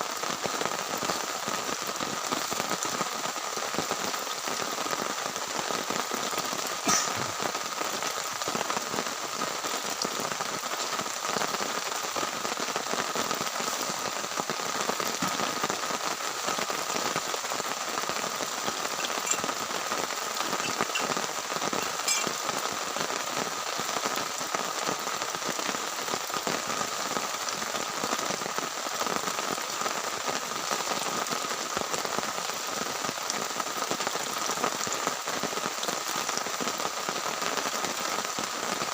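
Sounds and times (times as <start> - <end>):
heavy rain hiss: 0.0 - 38.9.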